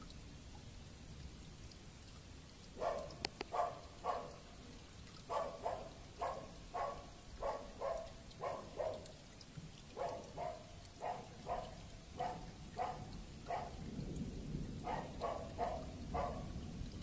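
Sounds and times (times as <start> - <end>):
faint rain patter: 0.0 - 17.0
animal barking: 2.8 - 4.5, 5.2 - 9.2, 9.9 - 13.9, 14.8 - 16.7.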